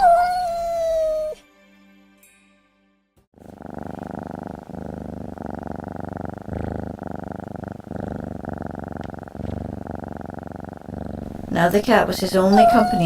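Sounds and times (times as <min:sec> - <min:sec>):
cat purring: 0:03.4 - 0:13.0.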